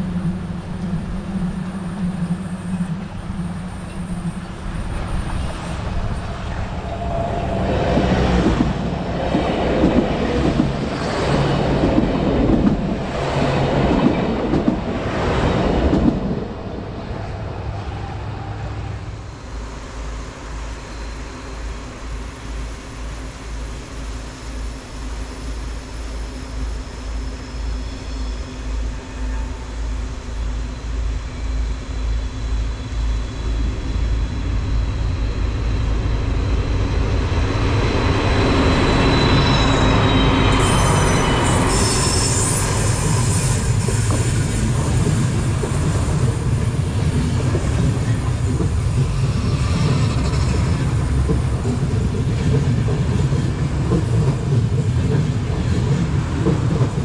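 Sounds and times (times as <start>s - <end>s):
diesel train passing: 0.0s - 57.0s
high wheel squeal: 38.2s - 46.2s.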